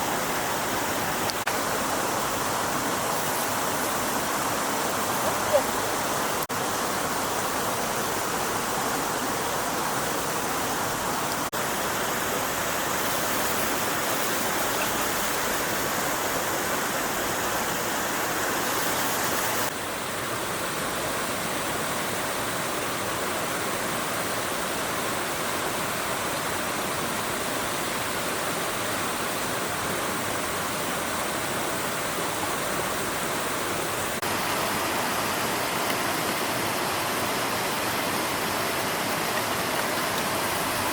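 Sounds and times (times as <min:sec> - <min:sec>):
stream water rushing: 0:00.0 - 0:40.9.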